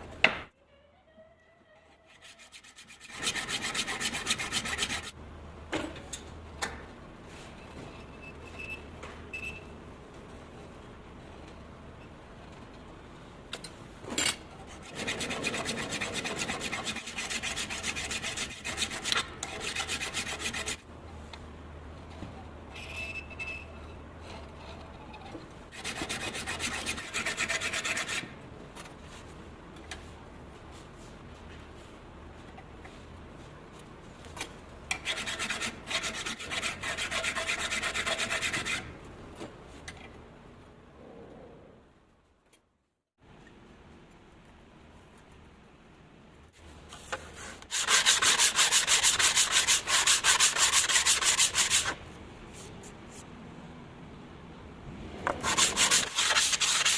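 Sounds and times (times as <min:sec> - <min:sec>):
hand file rasping on wood: 0:02.2 - 0:05.1, 0:47.7 - 0:52.0, 0:55.4 - 0:56.9.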